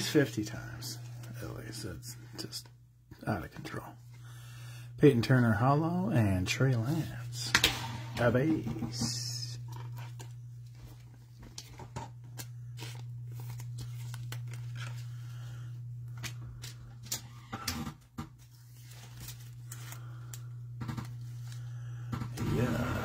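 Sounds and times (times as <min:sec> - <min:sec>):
steady low hum: 0:00.0 - 0:23.0
trading cards clicking and rustling: 0:07.6 - 0:15.4, 0:16.0 - 0:23.0.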